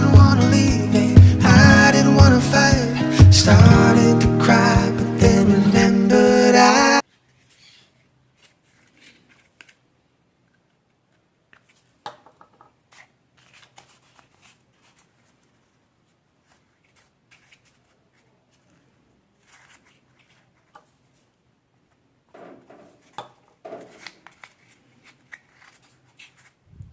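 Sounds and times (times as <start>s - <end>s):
background music: 0.0s - 7.0s
rustles and clicks of handling: 10.4s - 26.6s.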